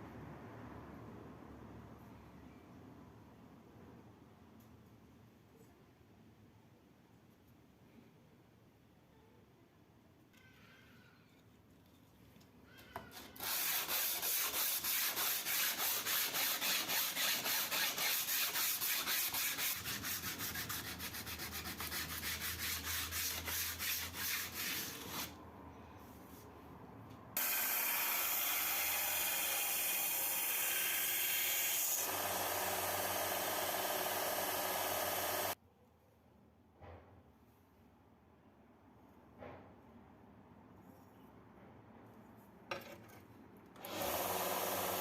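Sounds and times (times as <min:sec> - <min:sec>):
quick back-and-forth sanding: 0:13.4 - 0:25.4
continuous sanding with low hum: 0:14.2 - 0:25.4.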